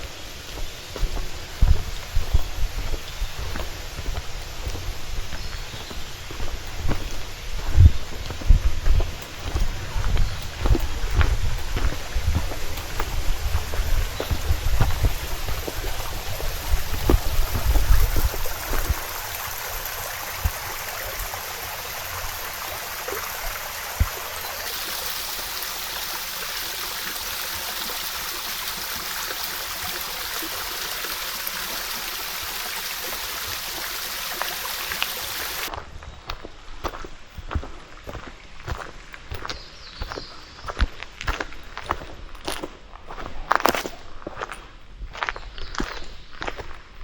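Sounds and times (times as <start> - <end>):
stream flowing over rocks: 9.2 - 35.7.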